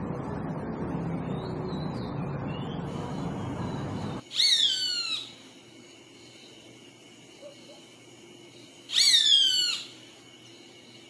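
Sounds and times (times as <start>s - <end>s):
low rumbling background noise: 0.0s - 4.3s
bird call with falling notes: 1.3s - 5.3s, 8.9s - 10.0s.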